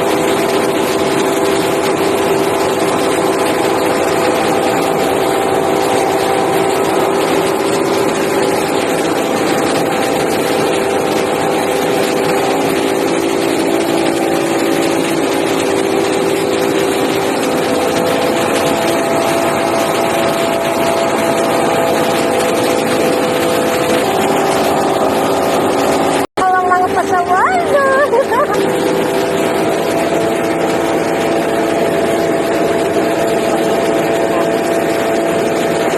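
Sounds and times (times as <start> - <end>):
milling machine drone: 0.0 - 35.9.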